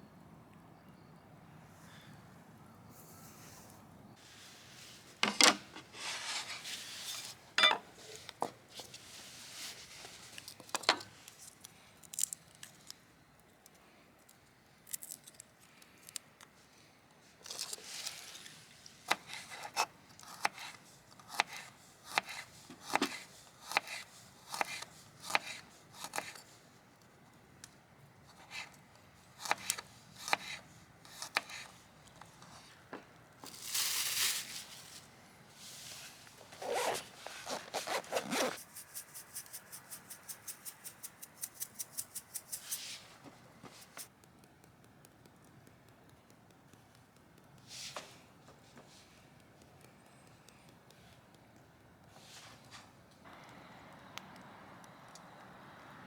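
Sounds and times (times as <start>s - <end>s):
rustling tear: 33.5s - 35.1s.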